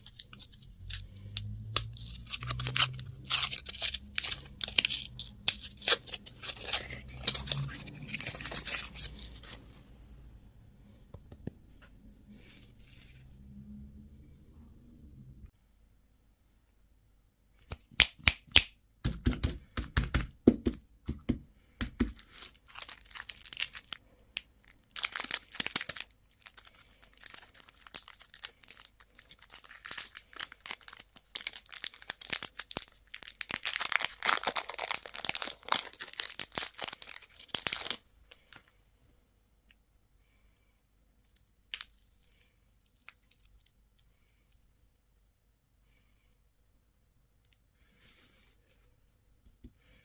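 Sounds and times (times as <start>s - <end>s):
wrapper tearing and crinkling: 1.7s - 9.6s, 22.1s - 38.5s, 41.3s - 43.7s.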